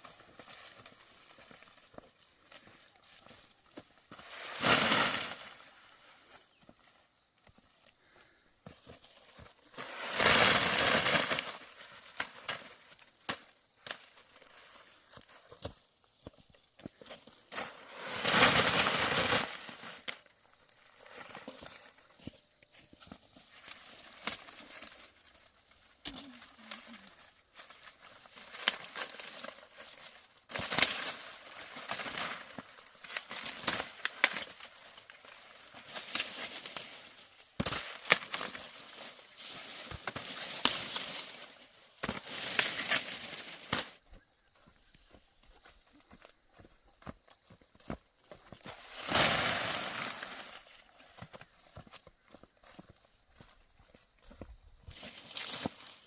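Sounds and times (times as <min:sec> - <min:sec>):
dry leaves rustling and tearing: 0:09.6 - 0:13.1, 0:23.6 - 0:44.0, 0:48.7 - 0:51.0, 0:54.9 - 0:56.0.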